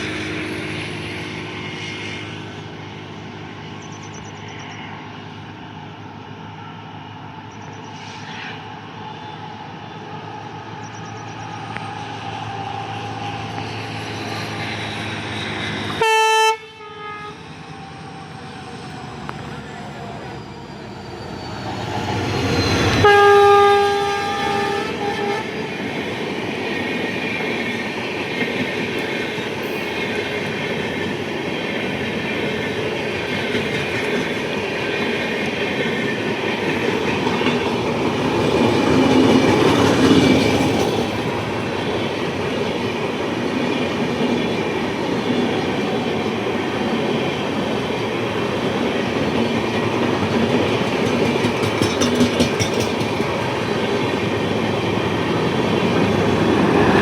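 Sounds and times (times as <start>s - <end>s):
locomotive horn blast: 15.9s - 17.4s, 22.9s - 25.6s
train wheels clattering over rails: 23.9s - 57.0s.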